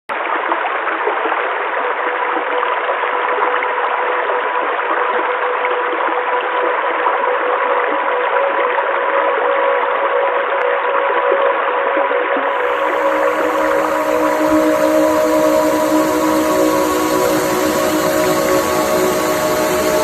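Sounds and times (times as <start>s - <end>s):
stream water rushing: 12.4s - 20.0s.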